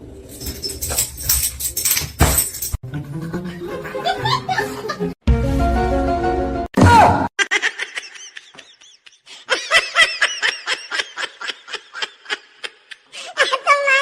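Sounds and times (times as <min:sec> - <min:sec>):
music: 0:02.8 - 0:06.7.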